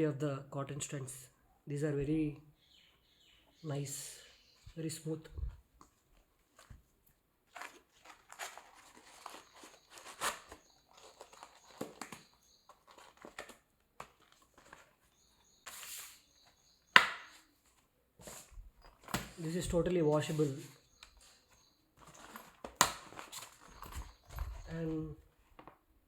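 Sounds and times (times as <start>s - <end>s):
duster packaging rustling and crinkling: 5.8s - 16.6s, 17.2s - 25.8s.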